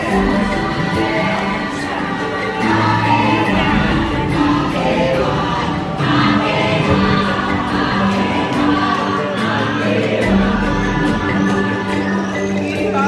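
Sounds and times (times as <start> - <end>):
choir singing long held notes: 0.0 - 13.0
steady instrumental music: 0.0 - 13.0.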